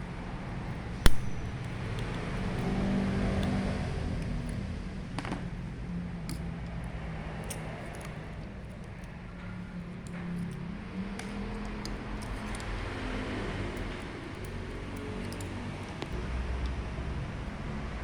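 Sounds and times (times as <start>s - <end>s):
sharp metallic click: 1.0s - 3.6s.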